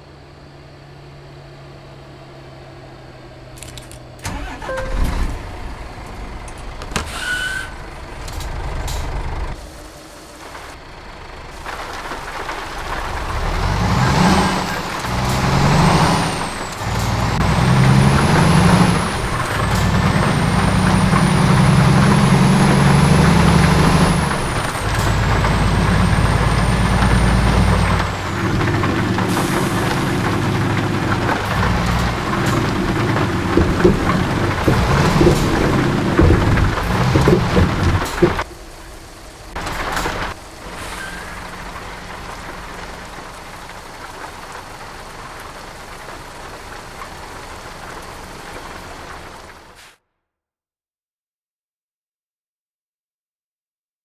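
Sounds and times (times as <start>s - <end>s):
truck diesel engine pulling away: 0.0s - 49.8s
clicks and knocks: 21.5s - 38.5s.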